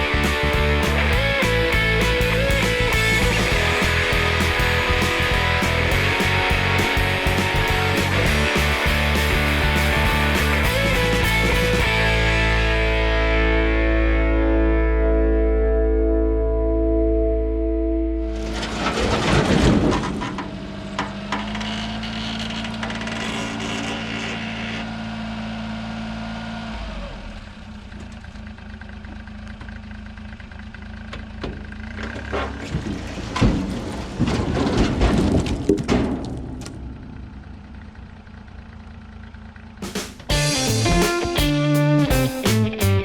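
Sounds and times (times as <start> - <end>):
small engine running: 0.0 - 12.7, 21.0 - 32.1
loud knocks and crashes: 18.3 - 23.2, 31.4 - 37.4.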